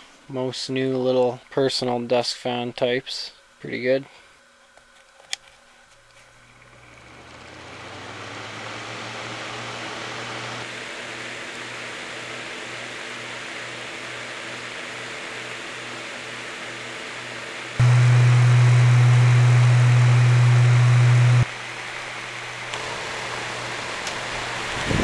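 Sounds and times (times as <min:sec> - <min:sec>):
low motor hum: 0:06.4 - 0:10.7, 0:17.8 - 0:21.5
fan rush of air: 0:06.6 - 0:14.7, 0:17.8 - 0:25.0.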